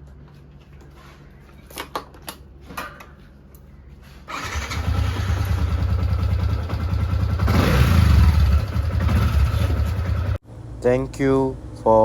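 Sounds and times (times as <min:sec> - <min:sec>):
motorcycle engine starting and running: 0:04.3 - 0:10.4.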